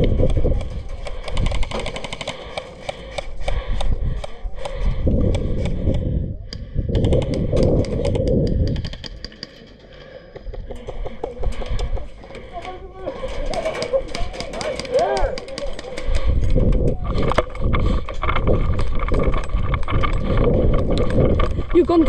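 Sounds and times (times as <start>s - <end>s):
low rumbling wind noise: 0.0s - 1.7s, 3.3s - 9.1s, 16.0s - 22.0s
airsoft rifles firing bursts: 1.2s - 3.2s.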